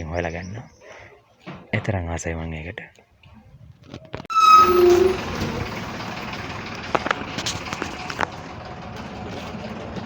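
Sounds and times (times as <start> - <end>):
vehicle horn: 4.3 - 5.7
road traffic: 4.3 - 10.0.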